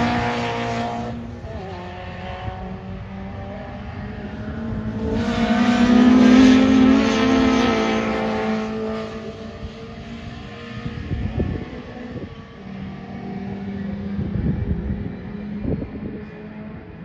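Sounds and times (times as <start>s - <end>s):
racing car engine passing: 0.0s - 17.0s
wind buffeting microphone: 9.1s - 13.0s, 13.8s - 17.0s.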